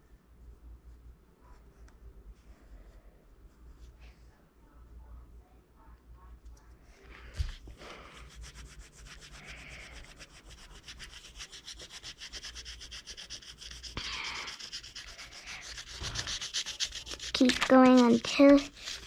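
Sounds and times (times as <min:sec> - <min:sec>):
oil pastel scratching on paper: 0:07.4 - 0:19.0.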